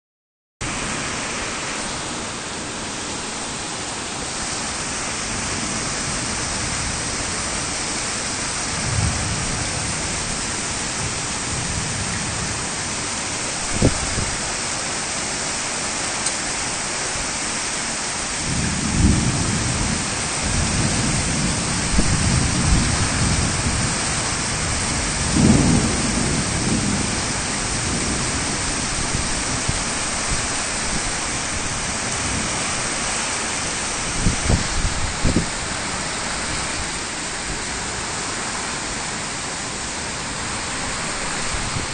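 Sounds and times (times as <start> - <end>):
heavy rain: 0.6 - 41.9
thunder rumbling: 4.8 - 14.8, 18.4 - 41.9.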